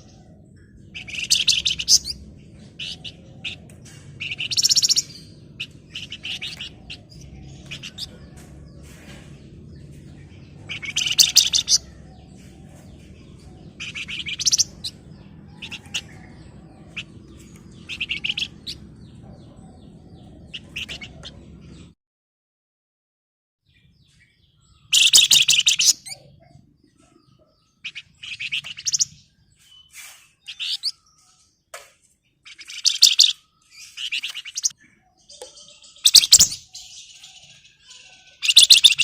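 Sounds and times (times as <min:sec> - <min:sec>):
bird sharp chirps: 0:00.0 - 0:21.9, 0:23.7 - 0:31.5, 0:32.4 - 0:39.0
songbird rattling trills: 0:10.6 - 0:12.1, 0:32.5 - 0:34.7.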